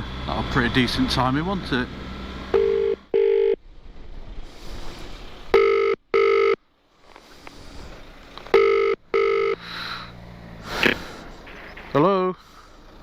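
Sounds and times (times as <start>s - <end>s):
telephone ringing tone: 2.5s - 3.6s, 5.5s - 6.6s, 8.5s - 9.6s.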